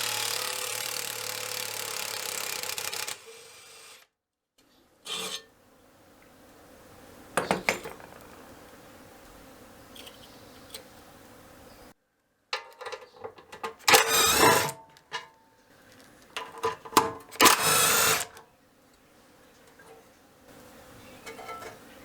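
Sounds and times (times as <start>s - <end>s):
fast mechanical rattling: 0.0s - 3.3s, 13.3s - 14.8s, 16.4s - 18.4s
metal clicks: 12.6s - 18.4s.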